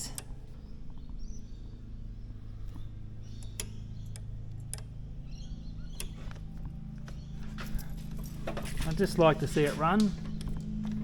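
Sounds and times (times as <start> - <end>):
low hum: 0.0 - 11.0
sharp clicks and ticks: 3.4 - 5.0.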